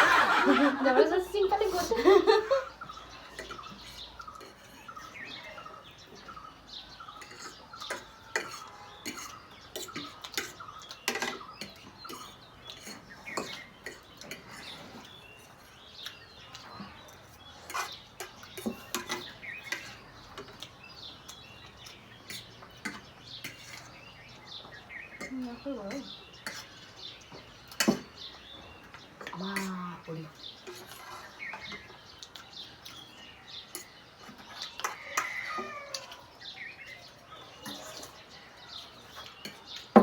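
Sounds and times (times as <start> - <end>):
faint birds chirping: 0.0 - 40.0
cutlery clinking on plates: 2.9 - 6.4, 7.0 - 29.8, 30.5 - 40.0.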